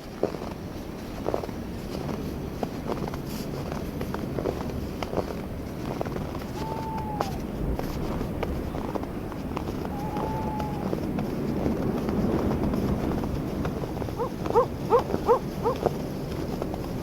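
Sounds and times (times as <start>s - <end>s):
footsteps crunching on snow: 0.0s - 17.0s
steady wind: 0.0s - 17.0s
animal short rising calls: 6.5s - 7.5s, 9.9s - 11.0s, 13.8s - 15.9s.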